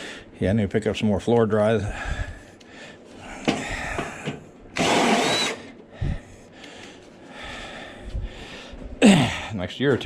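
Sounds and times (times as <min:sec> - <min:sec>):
handheld power tool running: 0:04.8 - 0:05.6.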